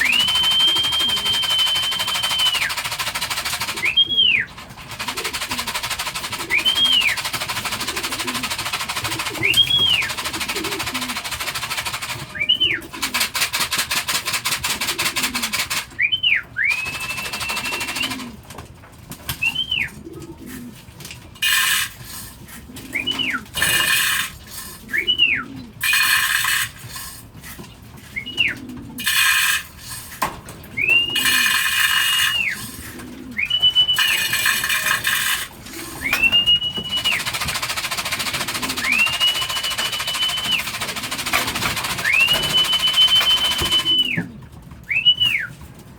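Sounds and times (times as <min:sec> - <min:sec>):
person whistling: 0:00.0 - 0:02.8, 0:06.5 - 0:07.2, 0:16.0 - 0:18.2, 0:30.8 - 0:31.5, 0:32.1 - 0:32.6, 0:33.4 - 0:34.9, 0:36.0 - 0:37.3, 0:38.7 - 0:40.7, 0:42.0 - 0:44.3, 0:44.9 - 0:45.5
pigeons cooing: 0:00.0 - 0:45.9.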